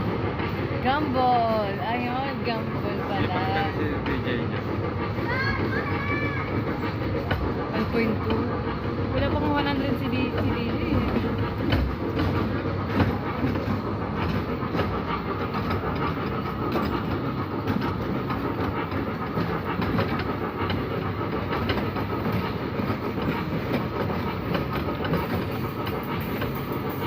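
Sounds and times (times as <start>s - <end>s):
ride train wheels rumbling: 0.0s - 27.0s.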